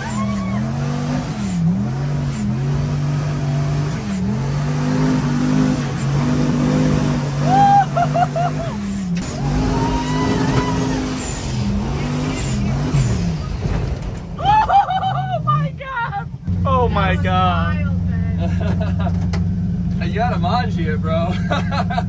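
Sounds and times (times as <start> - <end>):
people shouting: 0.0 - 1.2, 7.4 - 12.2, 14.4 - 16.1
off-road vehicle engine straining: 0.0 - 22.0.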